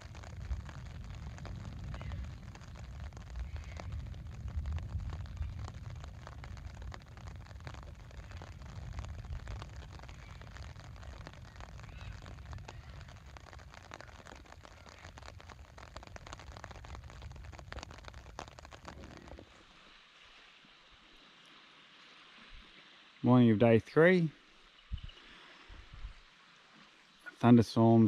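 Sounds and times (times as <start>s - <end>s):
low thunder rumble: 0.0s - 19.5s
raindrops hitting close: 0.0s - 28.0s.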